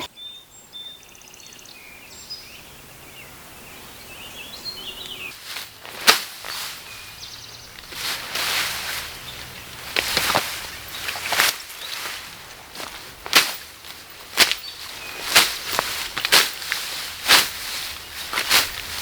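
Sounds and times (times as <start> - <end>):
birds chirping and trilling: 0.0 - 19.0
rustling: 5.1 - 19.0.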